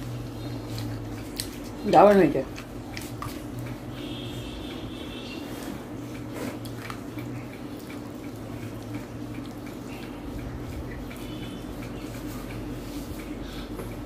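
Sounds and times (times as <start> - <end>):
wet chewing smacks: 0.4 - 3.8, 6.1 - 12.6.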